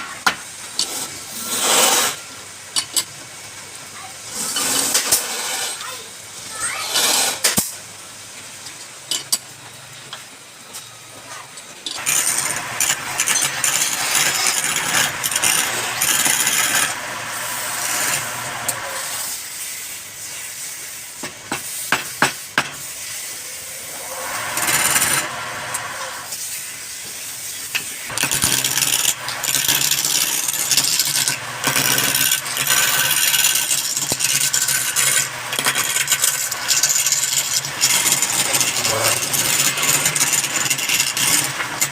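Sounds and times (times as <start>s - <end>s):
power tool cutting wood: 12.0s - 19.4s, 23.7s - 26.3s, 28.1s - 41.9s.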